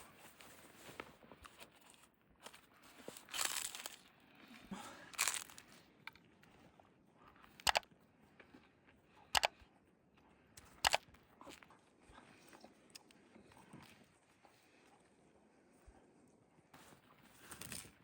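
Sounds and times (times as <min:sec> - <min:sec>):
crunching: 0:02.4 - 0:04.1, 0:05.0 - 0:05.8.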